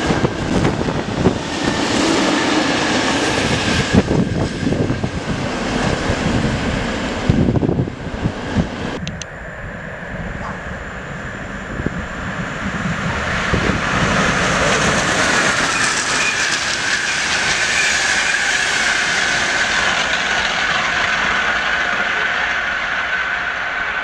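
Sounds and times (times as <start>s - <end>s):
train wheels rushing on rail: 0.0s - 9.1s, 10.4s - 24.0s
high whine: 7.0s - 19.6s.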